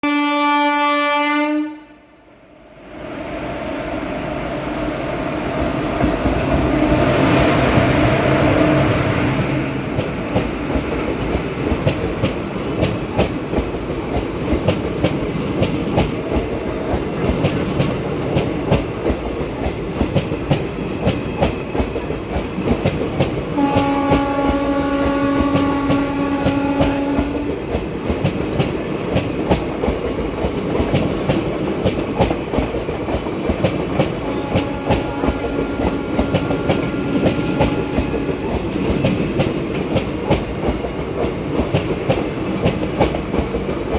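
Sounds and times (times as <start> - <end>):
train horn: 0.0 - 2.3, 23.6 - 27.6, 34.2 - 38.6
train wheels clicking on rails: 4.0 - 43.9.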